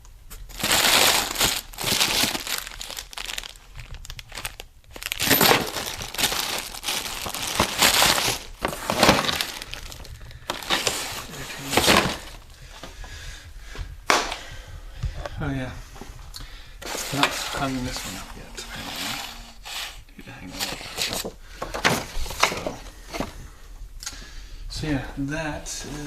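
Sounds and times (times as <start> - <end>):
plastic packaging crinkling: 0.3 - 12.8, 16.8 - 23.0.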